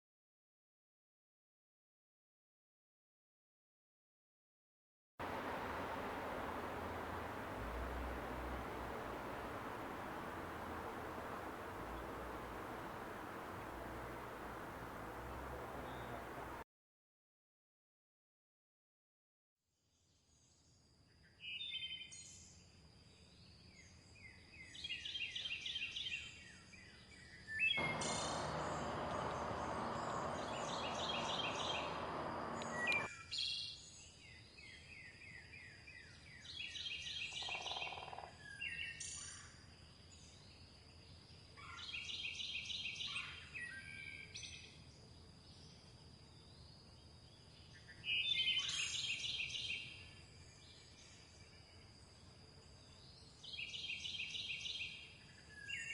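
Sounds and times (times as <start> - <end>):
songbirds singing: 5.2 - 16.6, 27.8 - 33.1
loud rushing noise: 27.8 - 33.1.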